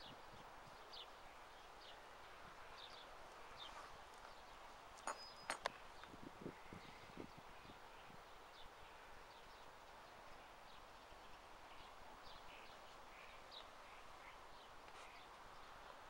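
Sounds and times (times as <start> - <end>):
faint bird chirps: 5.0 - 10.4.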